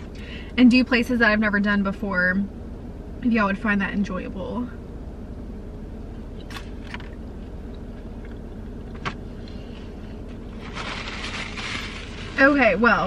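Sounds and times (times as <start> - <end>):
low hum inside car cabin: 0.0 - 13.0
paper rustling: 9.8 - 12.8.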